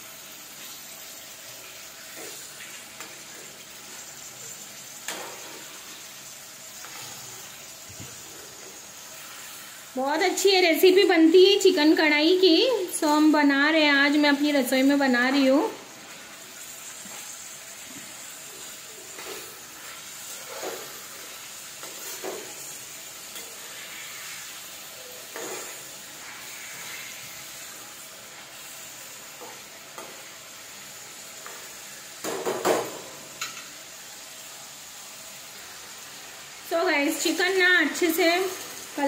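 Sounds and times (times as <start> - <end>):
chicken sizzling in hot oil: 0.0 - 39.0
spoon scraping a pan: 2.0 - 6.0, 6.7 - 9.9, 16.9 - 30.5.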